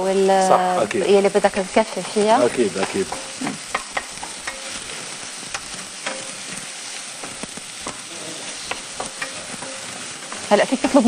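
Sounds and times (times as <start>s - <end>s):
vegetables sizzling in a frying pan: 0.0s - 11.0s
utensil clicking against a pan: 2.8s - 11.0s.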